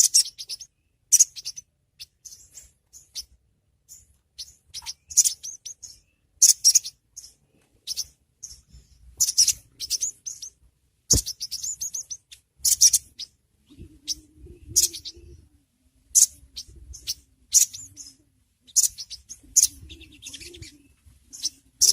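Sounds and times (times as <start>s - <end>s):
bird calling in sharp chirps: 0.0s - 21.9s.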